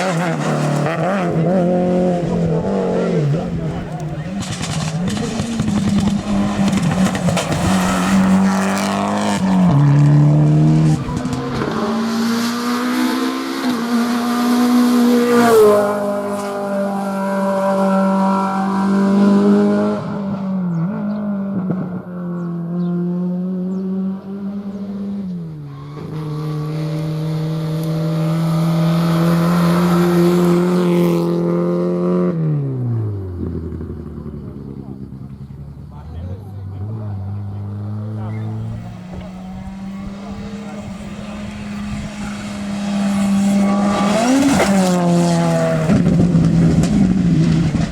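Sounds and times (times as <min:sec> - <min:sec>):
rally car engines revving hard: 0:00.0 - 0:47.9.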